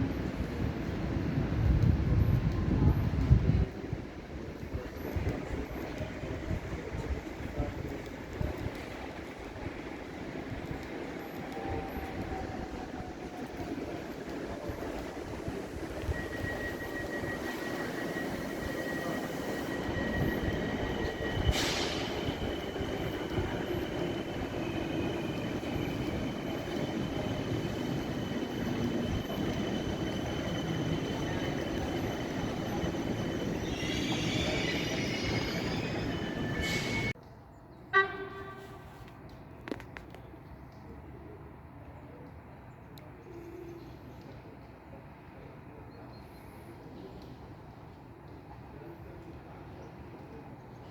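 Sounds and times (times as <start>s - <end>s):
train wheels rumbling on rail: 0.0s - 37.2s
faint high whines: 11.1s - 37.2s.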